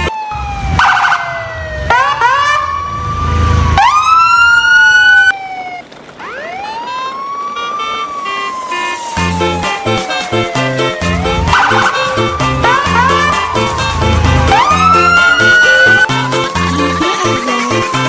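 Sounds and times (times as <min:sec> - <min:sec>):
wailing siren: 0:00.0 - 0:18.0
background music: 0:09.0 - 0:18.0.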